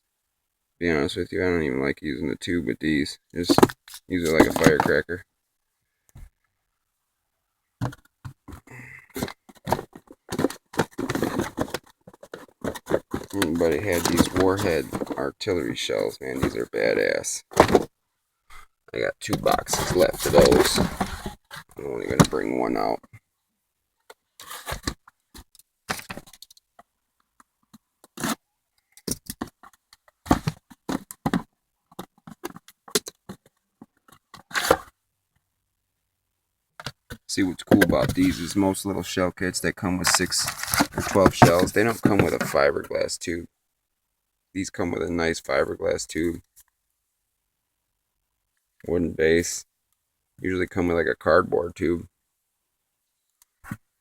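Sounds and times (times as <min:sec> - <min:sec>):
cardboard boxes being handled: 0:03.4 - 0:05.0, 0:07.8 - 0:16.8, 0:17.5 - 0:17.9, 0:19.3 - 0:23.0, 0:30.3 - 0:32.7, 0:37.7 - 0:38.6, 0:40.0 - 0:42.7.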